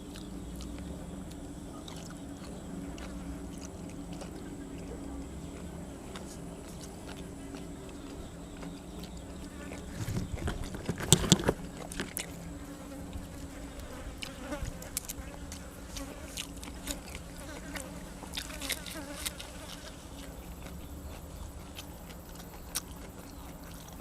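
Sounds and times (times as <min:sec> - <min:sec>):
chewing and crunching food: 0:00.0 - 0:24.0
steady low hum: 0:00.0 - 0:24.0.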